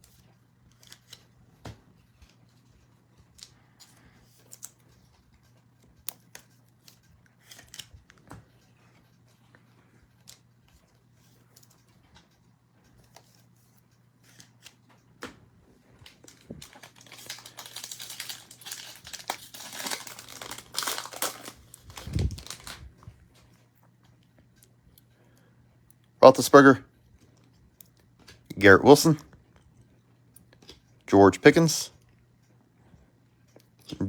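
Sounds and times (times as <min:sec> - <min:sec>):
foil wrappers crinkling and tearing: 0:16.0 - 0:23.2.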